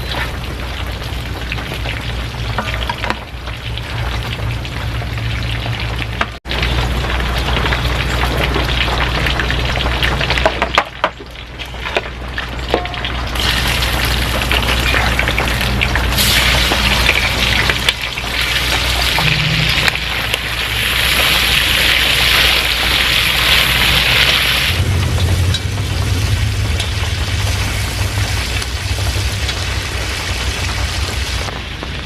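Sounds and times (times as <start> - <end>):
food sizzling in a pan: 13.0 - 31.6.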